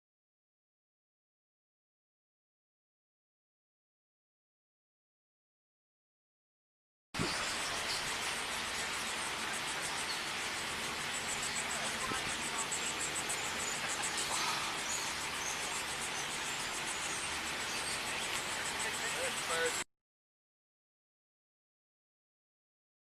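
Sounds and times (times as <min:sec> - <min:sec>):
insects chirping: 0:07.2 - 0:19.8
outdoor hiss: 0:07.2 - 0:19.8.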